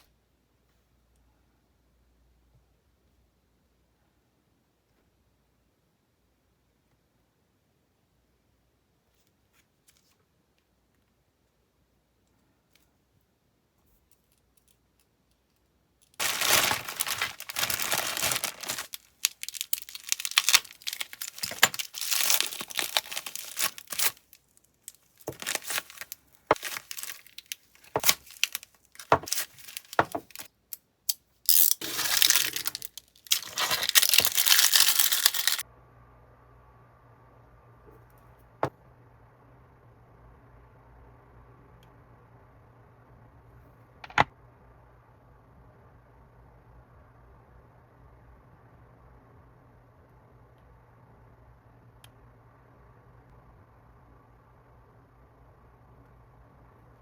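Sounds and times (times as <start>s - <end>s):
faint steady hum: 0.0s - 57.0s
packaging tearing and crinkling: 16.2s - 30.5s, 31.5s - 35.6s.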